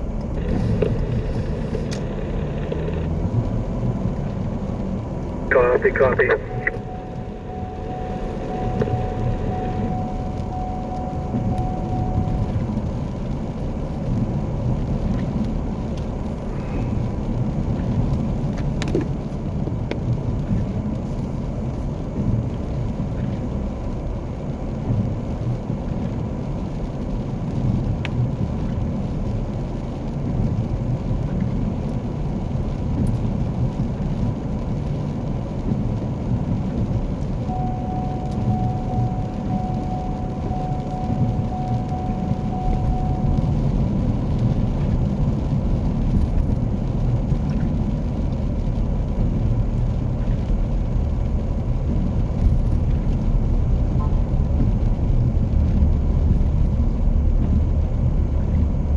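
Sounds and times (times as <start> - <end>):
car road and engine rumble: 0.0 - 58.9
faint steady tone: 5.5 - 14.2, 37.3 - 45.1.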